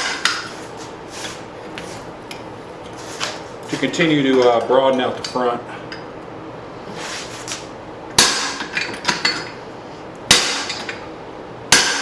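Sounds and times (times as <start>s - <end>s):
hammer strikes ringing on anvil: 10.3s - 10.9s, 11.7s - 12.0s.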